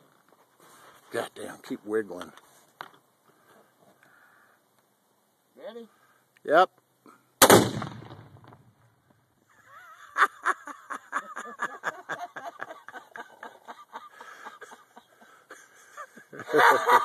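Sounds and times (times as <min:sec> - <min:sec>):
rifle shot and explosion blast: 0:07.4 - 0:08.8.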